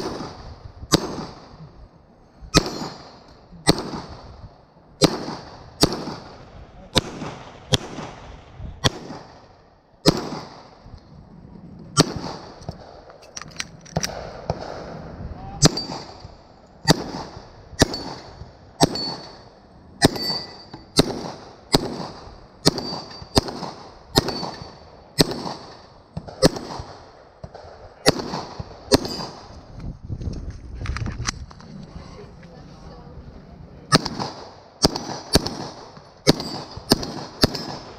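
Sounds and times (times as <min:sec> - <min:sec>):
gunshots: 0:00.0 - 0:01.6, 0:02.5 - 0:04.4, 0:05.0 - 0:10.8, 0:12.0 - 0:13.1, 0:13.9 - 0:15.0, 0:15.6 - 0:16.2, 0:16.8 - 0:29.6, 0:33.9 - 0:37.9
metallic ping of steel targets: 0:20.1 - 0:20.9.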